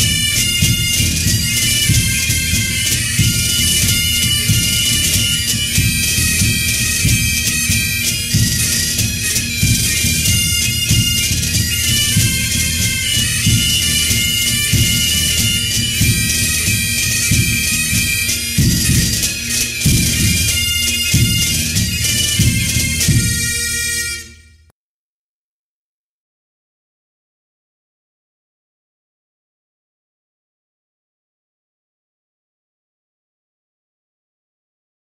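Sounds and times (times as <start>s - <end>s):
drum beats: 0.0s - 24.1s
bagpipes playing a tune: 0.0s - 24.7s.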